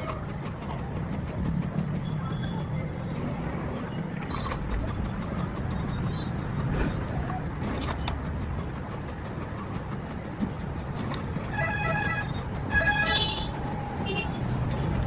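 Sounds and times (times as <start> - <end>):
road traffic rumble: 0.0 - 15.0
vehicle horn honking: 11.5 - 14.4.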